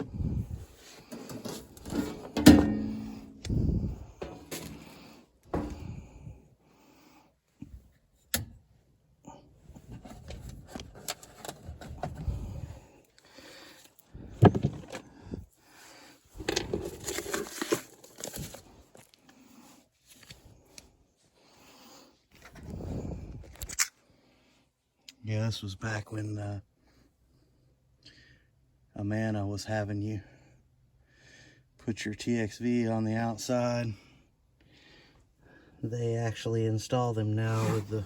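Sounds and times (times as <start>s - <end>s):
handling clicks and scrapes: 0.0s - 6.1s, 9.7s - 13.2s, 16.3s - 19.4s, 37.4s - 38.0s.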